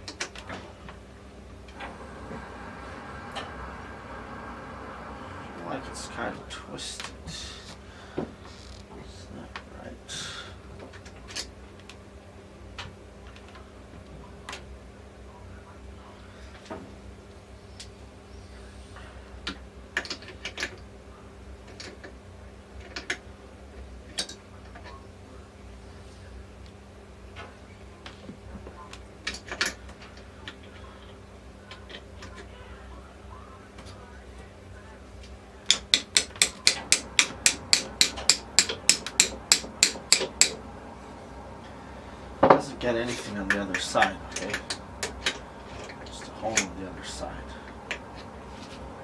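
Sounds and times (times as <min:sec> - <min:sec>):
steel parts clicking and tapping: 0:35.7 - 0:40.6.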